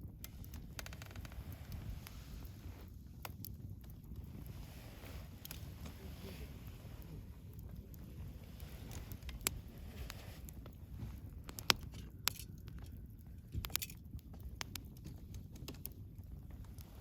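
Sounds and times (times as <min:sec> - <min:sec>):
bonfire crackling and popping: 0:00.0 - 0:17.0
low rumble of burning wood: 0:00.0 - 0:17.0.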